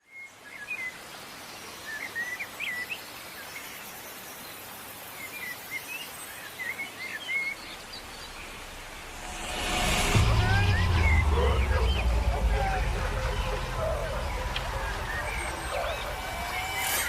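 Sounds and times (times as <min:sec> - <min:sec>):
forest ambience hiss: 0:00.1 - 0:09.7
birds chirping: 0:11.0 - 0:17.0.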